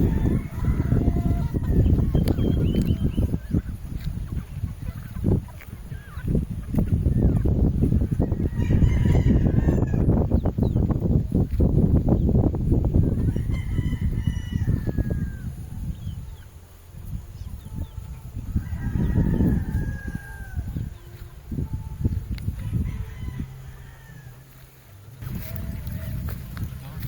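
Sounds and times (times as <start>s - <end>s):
roosters crowing: 0.0s - 5.3s, 7.1s - 10.8s, 13.0s - 16.3s, 17.7s - 27.0s.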